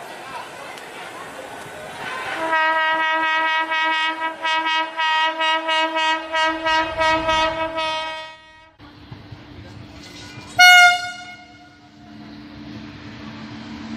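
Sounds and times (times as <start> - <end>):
low train rumble: 0.0 - 13.9
locomotive horn blast: 2.3 - 8.8, 10.6 - 12.0.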